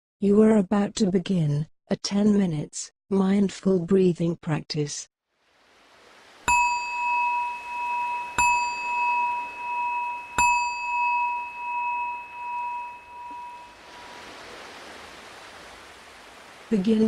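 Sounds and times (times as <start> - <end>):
meditation bell ringing: 6.5 - 14.5.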